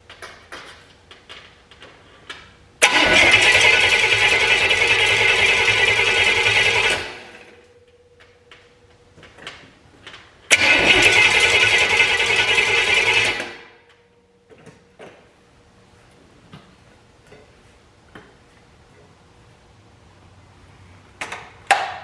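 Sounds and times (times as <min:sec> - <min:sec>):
engine cranking over: 0:02.8 - 0:07.6, 0:10.5 - 0:13.8.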